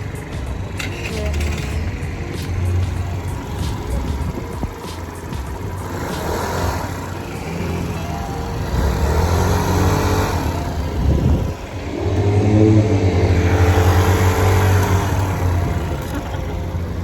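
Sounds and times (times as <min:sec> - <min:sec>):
small motorbike engine: 0:00.0 - 0:17.0
wind on microphone: 0:10.3 - 0:16.0.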